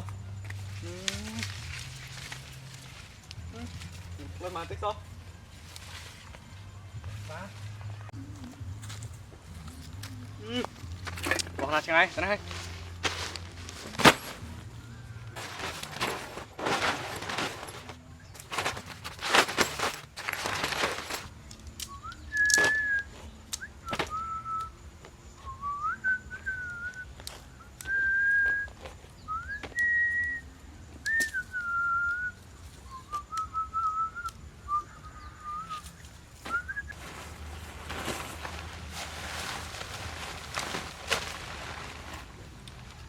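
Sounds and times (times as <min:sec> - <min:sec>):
loud rustling: 0:15.4 - 0:21.3
person whistling a slow tune: 0:21.7 - 0:37.0.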